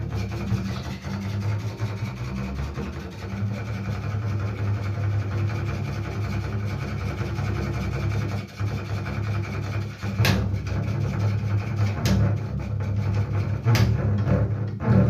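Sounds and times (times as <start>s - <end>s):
bowed double bass notes: 0.0s - 15.0s
sharp knocks: 10.0s - 10.8s, 13.7s - 15.0s.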